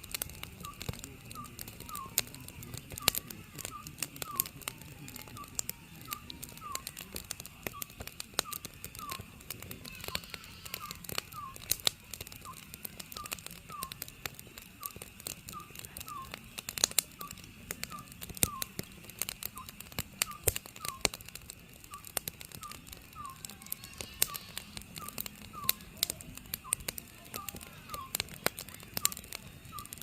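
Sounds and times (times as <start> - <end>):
wood fire crackling: 0.0 - 30.0
owl calling: 7.7 - 11.7, 22.6 - 25.9.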